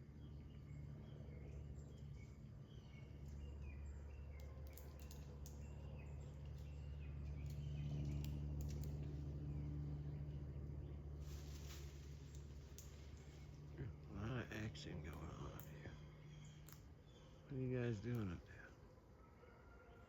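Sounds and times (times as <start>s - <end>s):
steady low hum: 0.0s - 19.5s
light clicks: 4.3s - 5.8s, 6.4s - 9.2s, 15.1s - 15.8s, 16.5s - 16.9s
faint bird chirps: 12.2s - 20.0s.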